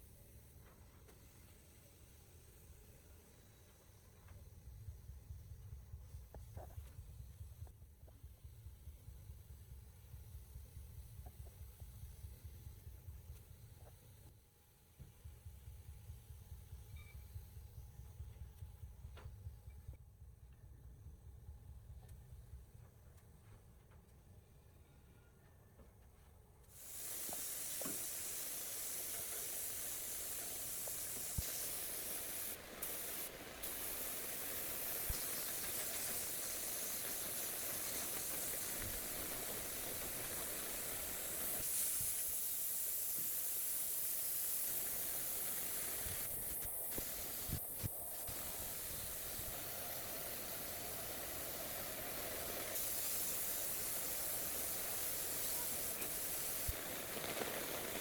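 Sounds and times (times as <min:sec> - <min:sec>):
compressed air hissing: 0:26.7 - 0:58.0.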